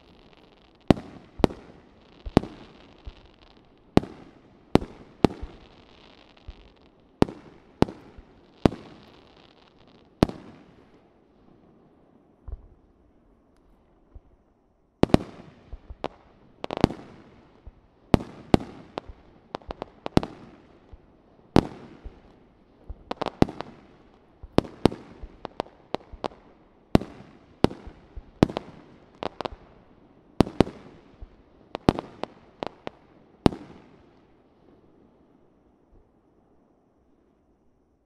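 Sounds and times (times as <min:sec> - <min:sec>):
fireworks bangs with echo: 0:00.0 - 0:09.2.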